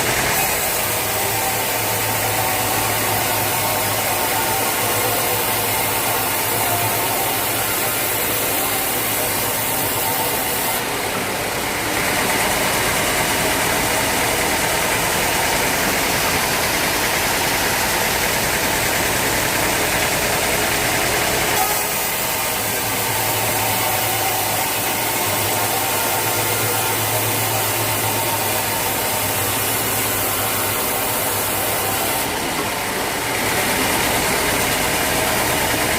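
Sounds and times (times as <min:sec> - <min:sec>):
sawmill machinery humming: 0:00.0 - 0:35.9.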